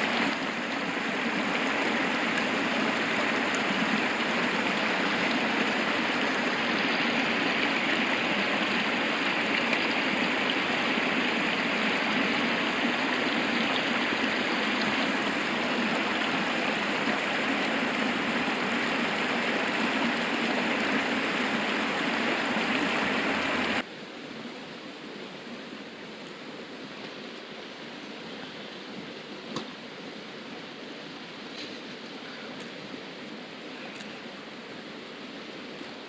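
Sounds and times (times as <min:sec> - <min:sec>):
river rushing: 0:00.0 - 0:23.9.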